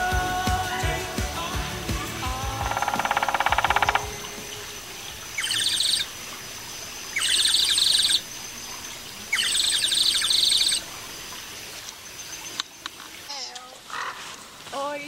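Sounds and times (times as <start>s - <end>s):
buzzy pulsed bird call: 2.5s - 8.4s, 9.3s - 10.8s
high bird trills: 2.7s - 6.2s, 7.0s - 10.9s.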